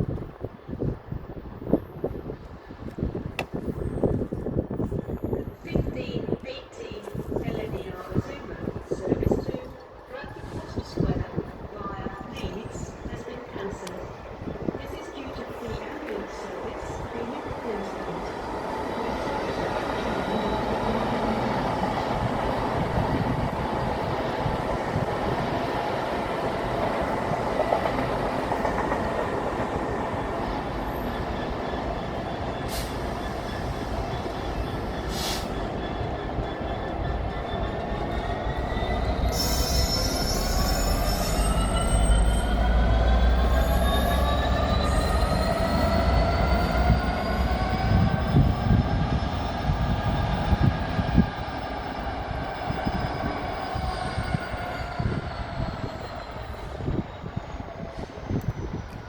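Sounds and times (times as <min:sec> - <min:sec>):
heavy low train rumble: 0:00.0 - 0:59.0
rising whine of train: 0:00.0 - 0:59.0
train wheel squeal: 0:30.1 - 0:59.0.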